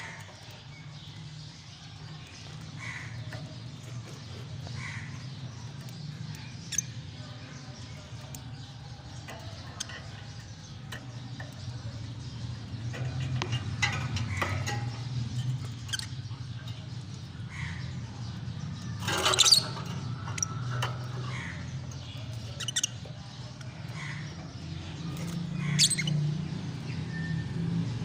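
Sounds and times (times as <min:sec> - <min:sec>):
steady low hum: 0:00.0 - 0:25.8
lovebirds chirping and squeaking: 0:00.0 - 0:28.0.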